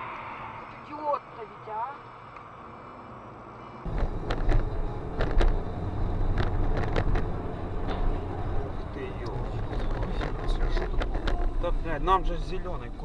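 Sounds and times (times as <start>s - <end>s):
car engine and road rumble: 0.1s - 13.0s
sharp knocks and rattles: 3.9s - 11.6s.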